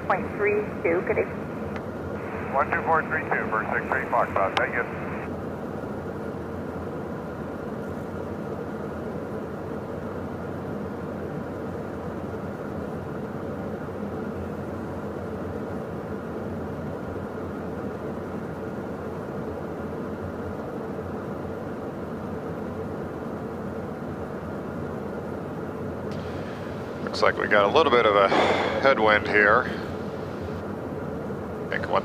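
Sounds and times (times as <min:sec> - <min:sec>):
jet engines humming: 0:00.0 - 0:32.0
rush of airflow: 0:28.2 - 0:30.6.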